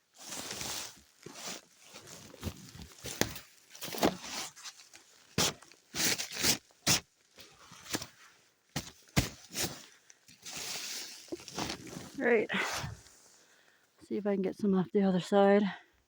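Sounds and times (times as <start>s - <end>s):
packed snow crunching and scraping: 0.0s - 13.4s
footsteps in snow: 8.8s - 13.3s.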